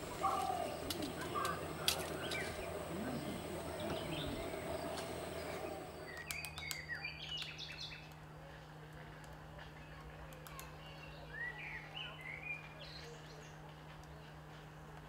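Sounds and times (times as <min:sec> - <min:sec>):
wild birds chirping: 0:00.0 - 0:08.0
outdoor background noise: 0:00.0 - 0:15.0.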